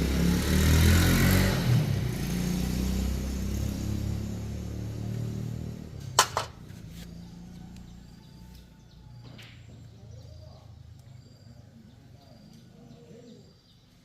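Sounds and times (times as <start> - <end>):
vehicle engine running: 0.0 - 10.0
faint bird chirps: 6.9 - 14.0.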